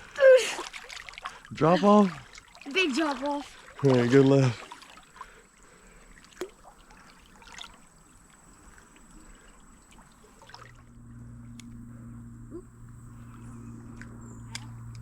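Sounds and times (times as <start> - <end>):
creek water sloshing: 0.0 - 11.2
steady low hum: 8.0 - 15.0.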